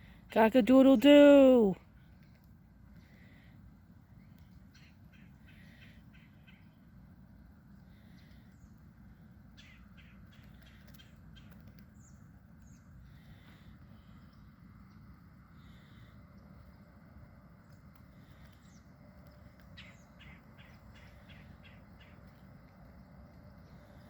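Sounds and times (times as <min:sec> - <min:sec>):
low steady rumble: 0:00.0 - 0:24.0
faint bird chirps: 0:07.7 - 0:16.9, 0:17.7 - 0:22.6.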